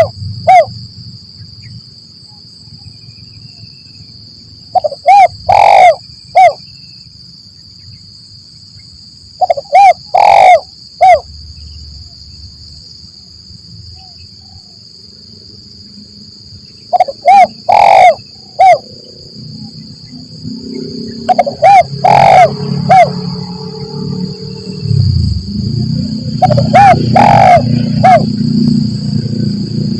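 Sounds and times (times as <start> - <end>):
dove cooing: 0.0 - 0.7, 4.7 - 6.6, 9.4 - 11.2, 16.9 - 18.9, 21.2 - 23.2, 26.4 - 28.4
steady high-pitched tone: 16.9 - 29.9
low rumble: 22.6 - 27.1.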